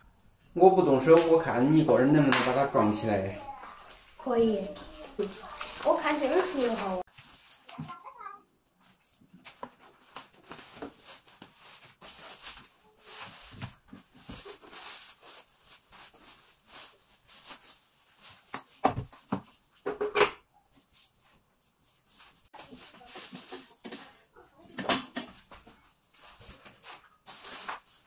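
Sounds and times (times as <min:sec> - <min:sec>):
packaging rustling: 0:01.1 - 0:08.0, 0:09.4 - 0:19.3, 0:26.2 - 0:28.0.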